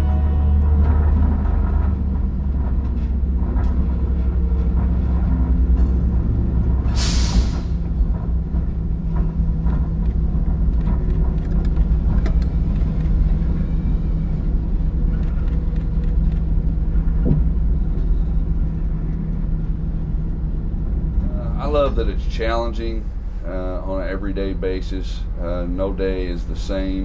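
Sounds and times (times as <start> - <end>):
diesel locomotive engine running: 0.0 - 27.0
air hiss: 6.9 - 7.8
faint clanks and knocks: 15.1 - 19.4.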